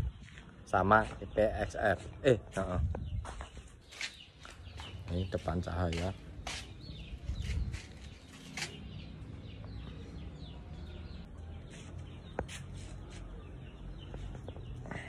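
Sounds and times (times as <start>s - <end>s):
small birds chirping: 0.0s - 15.0s
low rumble on microphone: 2.6s - 3.7s.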